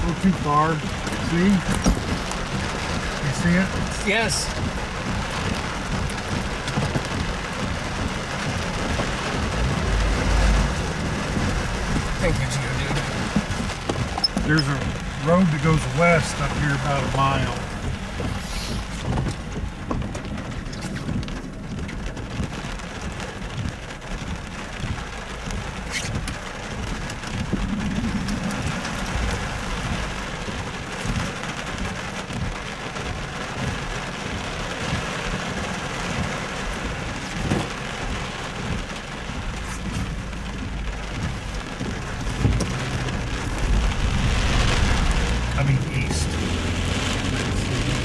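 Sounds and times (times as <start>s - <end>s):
rain on car roof: 0.0s - 48.0s
low rumble: 4.5s - 14.2s, 27.1s - 30.9s, 36.2s - 48.0s.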